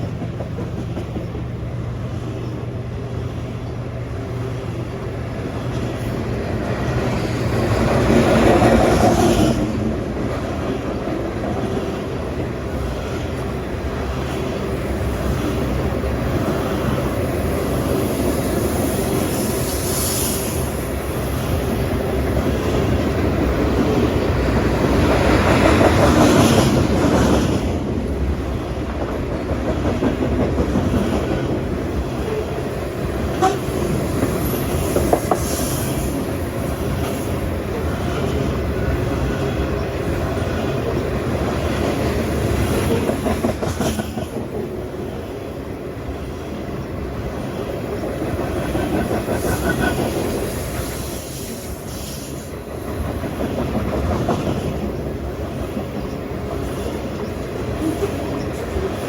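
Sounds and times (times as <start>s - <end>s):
train wheels clacking over rail joints: 0.0s - 1.6s, 33.2s - 44.8s.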